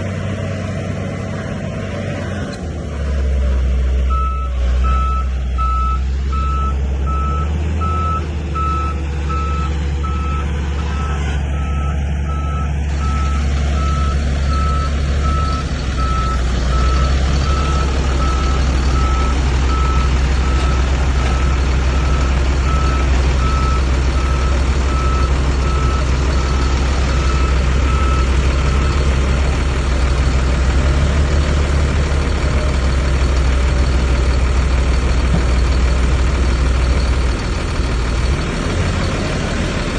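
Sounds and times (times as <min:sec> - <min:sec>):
diesel engine rumbling: 0:00.0 - 0:39.9
reversing alarm beeping: 0:04.1 - 0:29.4.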